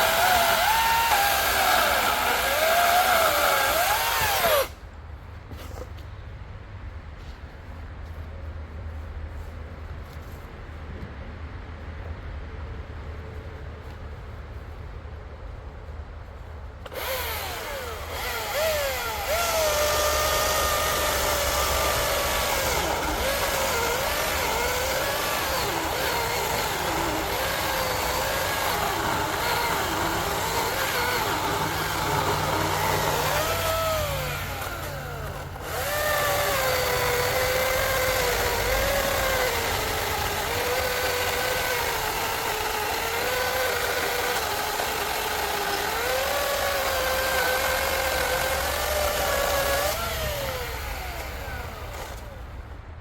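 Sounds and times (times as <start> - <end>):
chainsaw cutting log: 0.0 - 4.8, 16.8 - 52.6.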